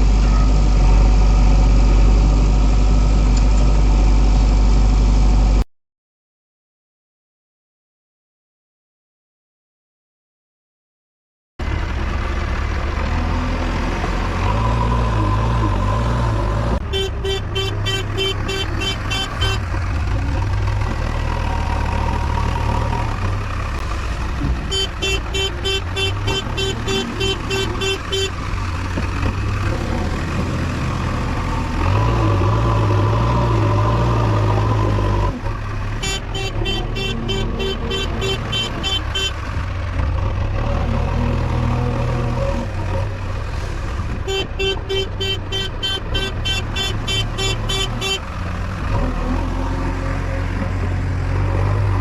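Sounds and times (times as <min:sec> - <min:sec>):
diesel engine revving: 0:11.6 - 0:52.0.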